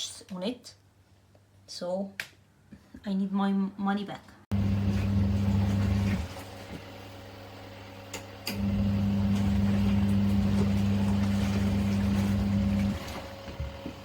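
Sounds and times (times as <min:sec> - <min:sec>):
washing machine motor humming: 0:04.5 - 0:14.0.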